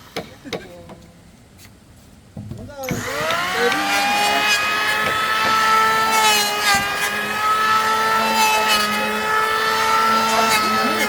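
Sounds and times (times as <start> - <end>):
power drill boring into wood: 2.9 - 11.0.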